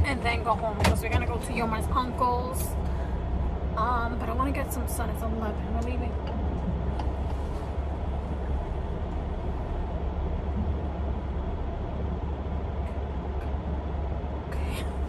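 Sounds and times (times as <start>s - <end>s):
car engine idling hum: 0.0s - 15.0s.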